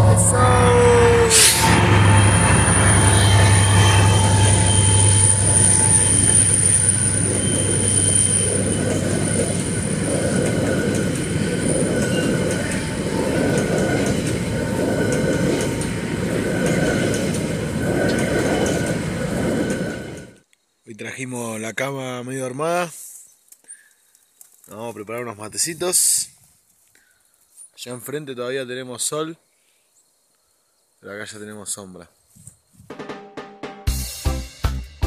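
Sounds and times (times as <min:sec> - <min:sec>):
train wheel squeal: 0:00.0 - 0:20.4
train wheels rumbling on rails: 0:00.0 - 0:20.4.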